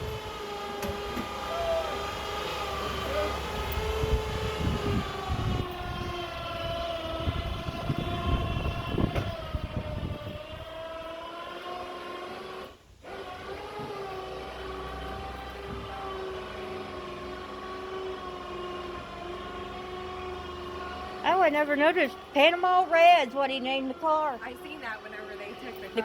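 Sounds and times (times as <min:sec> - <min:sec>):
mechanical whine: 0:00.0 - 0:26.0
low thumps and knocks: 0:03.8 - 0:10.7.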